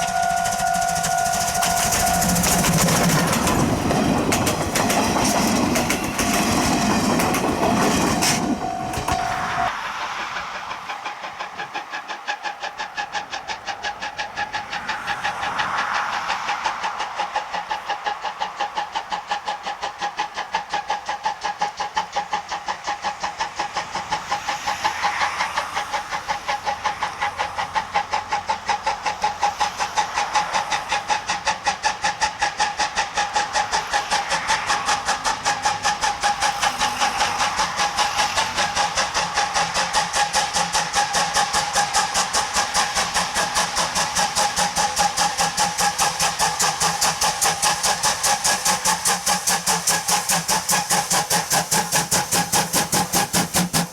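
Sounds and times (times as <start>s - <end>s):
steady whine: 0.0s - 17.8s
steam hiss: 0.0s - 53.9s
steam locomotive exhaust chuffs: 0.0s - 53.9s.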